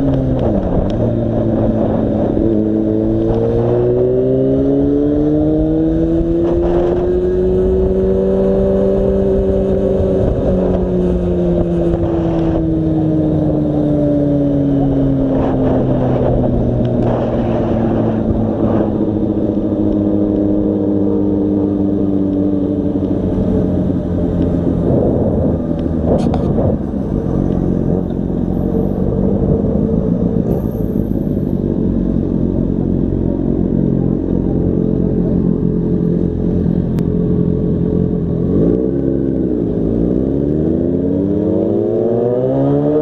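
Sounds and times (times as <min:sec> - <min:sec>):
wind rush: 0:00.0 - 0:20.1, 0:23.1 - 0:31.0
motorcycle engine running: 0:05.2 - 0:40.0.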